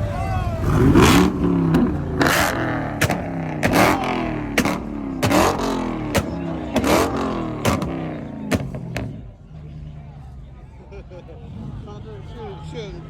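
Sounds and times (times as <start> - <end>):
car engine revving: 0.5 - 10.0
exhaust backfire bangs: 0.6 - 9.3.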